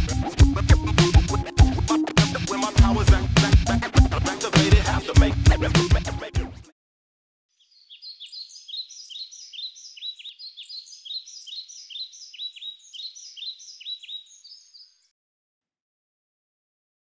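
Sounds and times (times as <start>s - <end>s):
small birds chirping: 7.5s - 15.1s.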